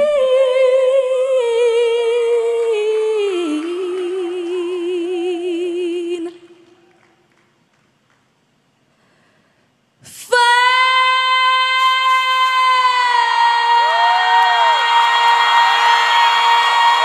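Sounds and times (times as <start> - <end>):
backing voices singing: 12.4 - 17.0.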